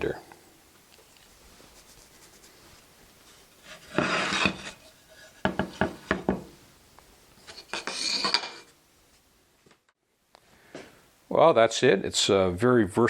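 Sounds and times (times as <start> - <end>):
wood scraping on wood: 3.4 - 6.3, 7.4 - 8.7
sharp wooden knocks: 5.5 - 6.5.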